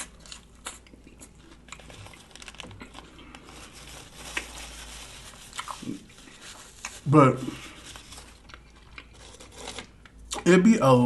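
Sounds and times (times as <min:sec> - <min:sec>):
crisp chewing crunches: 0:00.0 - 0:04.6, 0:05.5 - 0:06.1, 0:08.0 - 0:10.5.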